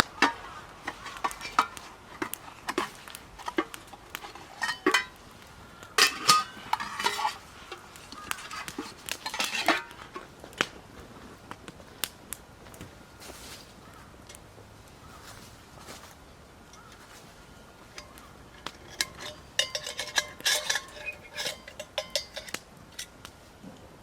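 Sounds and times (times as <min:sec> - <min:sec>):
dishes and utensils clinking: 0:00.1 - 0:05.2, 0:06.0 - 0:09.9, 0:18.0 - 0:23.1.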